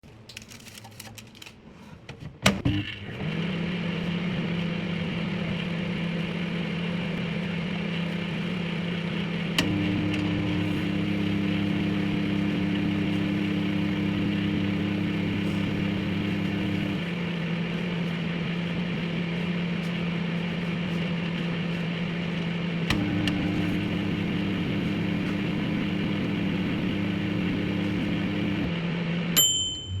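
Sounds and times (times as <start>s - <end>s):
microwave fan and turntable hum: 0.1s - 30.0s
heavier heating hum: 5.4s - 28.7s.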